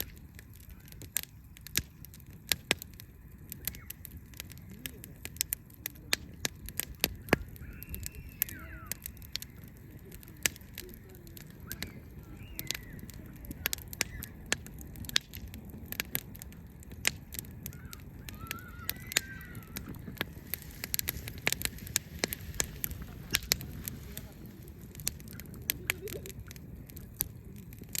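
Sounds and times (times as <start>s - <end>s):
wood fire crackling: 0.0s - 28.0s
bird calling: 3.5s - 4.9s, 7.1s - 14.5s, 17.5s - 26.3s.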